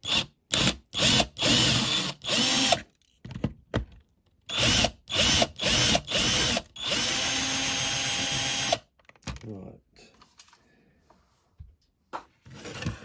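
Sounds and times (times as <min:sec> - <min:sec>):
small power drill drilling: 0:00.0 - 0:02.8, 0:04.5 - 0:08.8.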